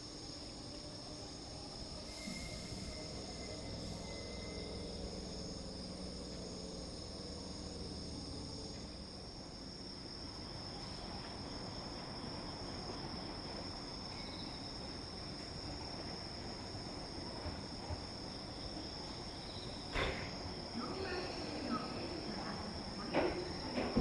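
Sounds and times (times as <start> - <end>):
crickets chirping: 0.0 - 24.0
low hum: 0.4 - 9.9.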